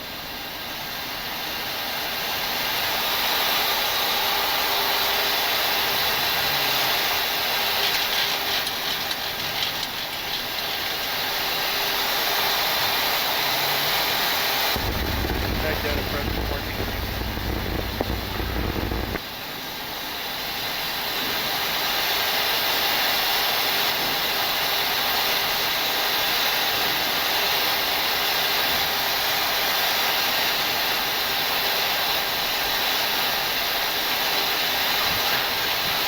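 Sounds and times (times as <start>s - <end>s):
rushing air in cockpit: 14.7s - 19.2s
low rumble: 14.8s - 19.2s.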